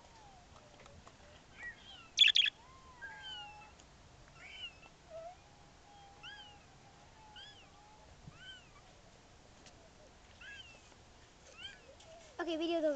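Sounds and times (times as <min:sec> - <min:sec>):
birds whistling: 0:01.6 - 0:02.5
sharp loud bird squawk: 0:02.2 - 0:02.5.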